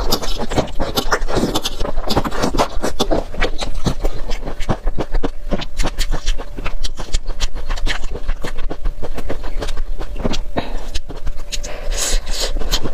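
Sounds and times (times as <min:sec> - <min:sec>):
chewing mouth clicks and smacks: 0:00.0 - 0:12.9.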